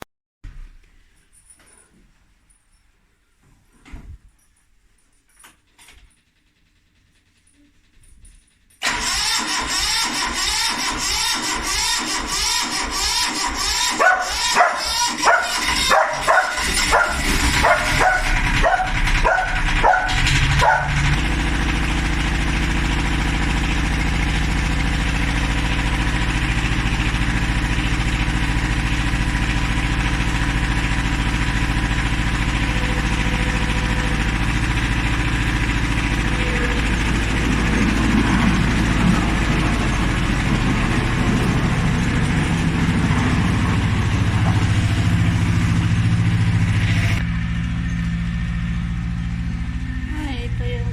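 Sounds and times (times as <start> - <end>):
tractor engine running: 7.9 - 50.9
dog barking: 13.9 - 21.0.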